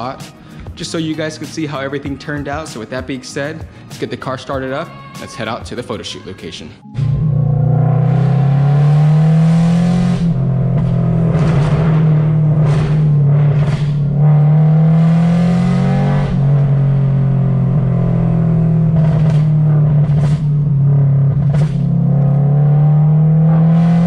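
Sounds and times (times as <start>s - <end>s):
car engine drone from inside cabin: 6.8s - 24.0s.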